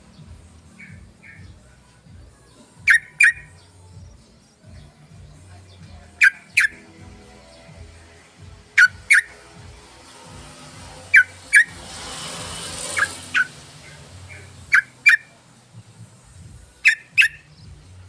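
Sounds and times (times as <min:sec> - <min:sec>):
bulbul calls: 0:02.8 - 0:04.1, 0:05.6 - 0:07.6, 0:08.7 - 0:09.4, 0:11.0 - 0:11.8, 0:12.8 - 0:15.4, 0:16.8 - 0:17.8.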